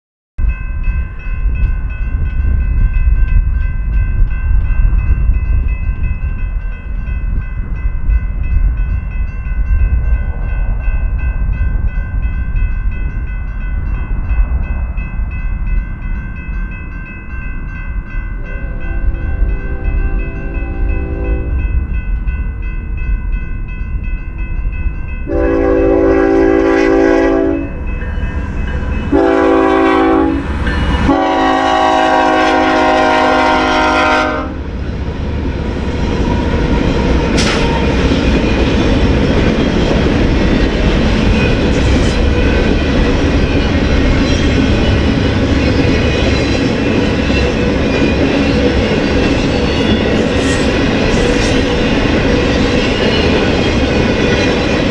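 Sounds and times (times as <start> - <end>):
train wheels on rails: 0.4 - 54.9
locomotive horn blasts: 18.4 - 21.7, 25.3 - 27.8, 29.1 - 34.6.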